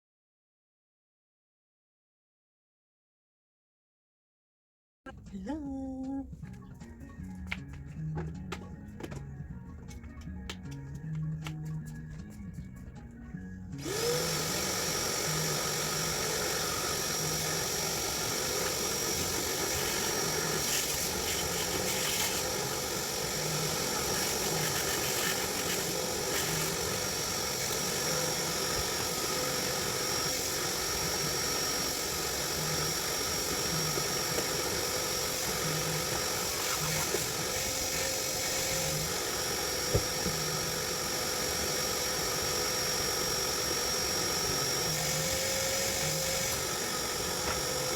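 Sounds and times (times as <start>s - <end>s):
motor whining: 13.8s - 47.9s.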